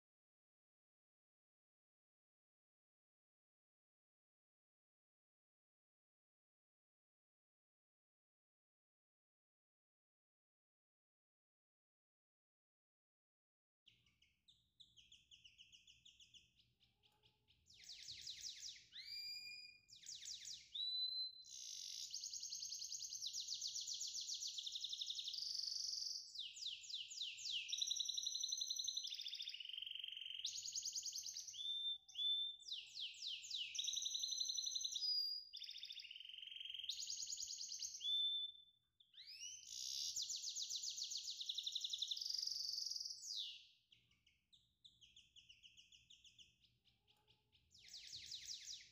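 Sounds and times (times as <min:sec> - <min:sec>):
songbird trilling and whistling: 0:17.7 - 0:43.7, 0:47.7 - 0:48.9.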